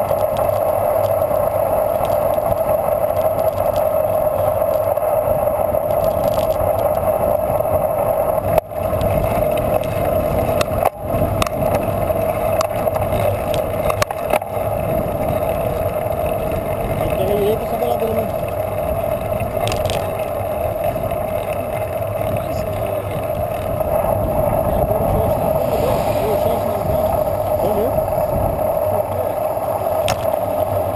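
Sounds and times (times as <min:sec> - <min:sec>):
bicycle tyres rolling: 0:00.0 - 0:30.9
wind rushing: 0:23.2 - 0:30.0.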